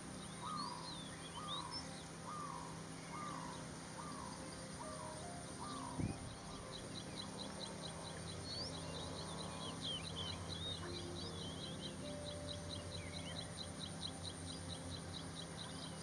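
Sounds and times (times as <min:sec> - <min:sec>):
small birds chirping: 0:00.0 - 0:16.0
steady low hum: 0:00.0 - 0:16.0.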